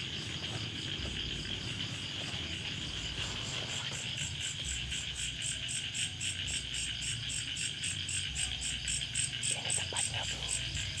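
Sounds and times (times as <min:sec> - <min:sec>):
insects buzzing: 0:00.0 - 0:11.0
pulsing insect trill: 0:00.0 - 0:11.0.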